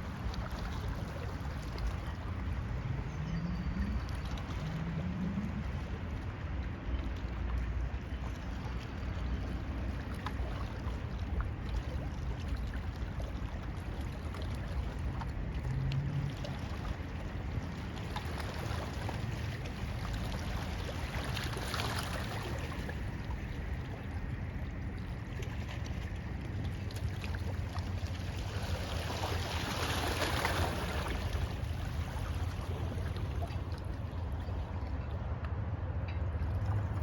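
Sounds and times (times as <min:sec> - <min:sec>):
boat engine rumble: 0:00.0 - 0:37.0
water washing along hull: 0:00.0 - 0:37.0
water splashing: 0:08.0 - 0:35.0.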